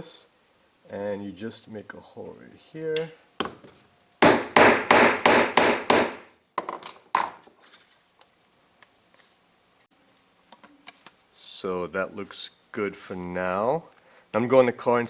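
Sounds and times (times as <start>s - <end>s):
hammer striking hole punch: 4.2s - 6.3s.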